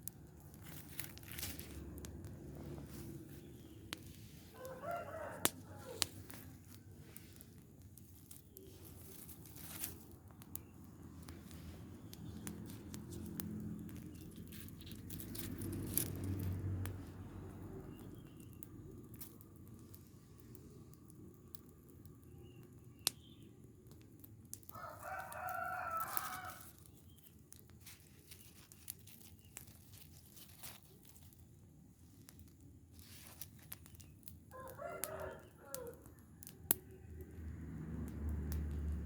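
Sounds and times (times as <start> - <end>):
rooster crowing: 4.5 - 6.2, 24.7 - 26.7, 34.5 - 37.0.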